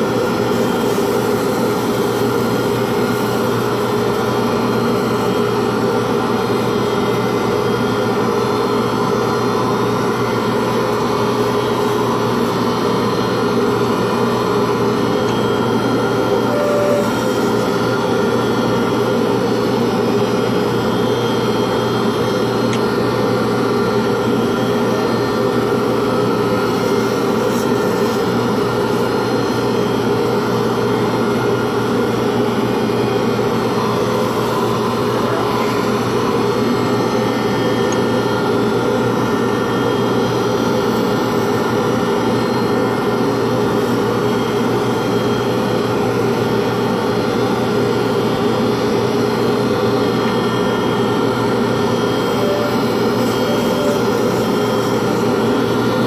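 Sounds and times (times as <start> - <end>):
spinning work whirring: 0.0 - 45.5, 50.0 - 56.0
lathe motor humming: 0.0 - 56.0.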